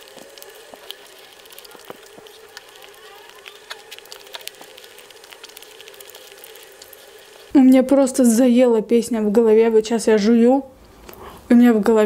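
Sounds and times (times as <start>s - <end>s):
chewing bread: 0.0s - 7.5s.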